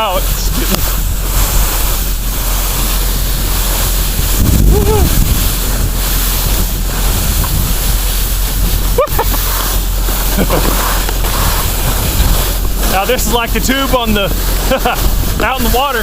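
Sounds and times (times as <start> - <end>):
excavator engine hum: 0.0 - 16.0
wind rushing over microphone: 0.0 - 16.0
short rising and falling whoop: 4.4 - 5.4.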